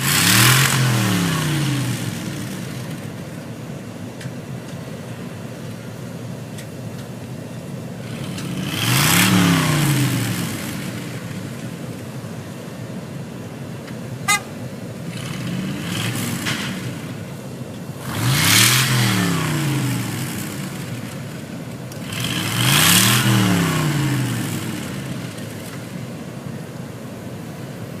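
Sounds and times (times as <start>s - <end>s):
truck engine revving: 0.0s - 3.4s, 7.9s - 12.2s, 14.3s - 26.3s.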